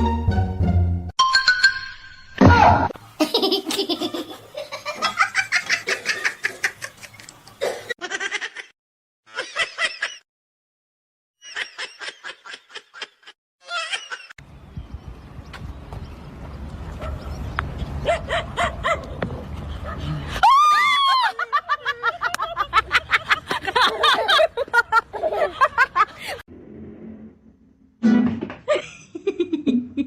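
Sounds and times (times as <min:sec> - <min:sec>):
high-pitched laughter: 0:03.2 - 0:08.7, 0:11.4 - 0:14.4, 0:20.8 - 0:26.4.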